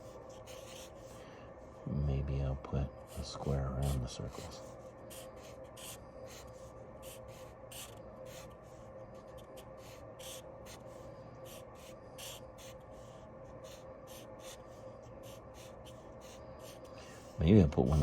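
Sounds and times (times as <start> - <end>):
pencil scratching on paper: 0.0 - 1.2, 3.0 - 18.0
faint hum: 0.0 - 18.0.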